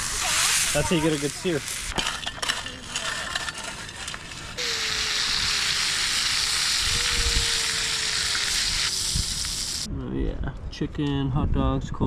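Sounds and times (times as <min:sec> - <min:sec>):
meat sizzling: 0:00.0 - 0:02.2, 0:04.2 - 0:09.9.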